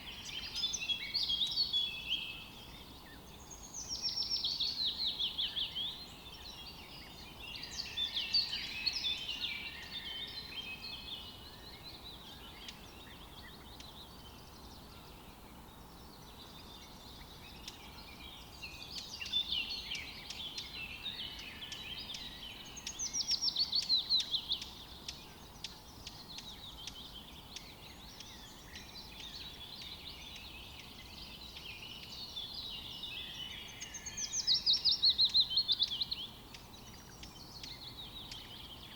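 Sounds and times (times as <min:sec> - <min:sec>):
faint outdoor hiss: 0:00.0 - 0:38.9
songbirds singing and chirping: 0:00.0 - 0:38.9.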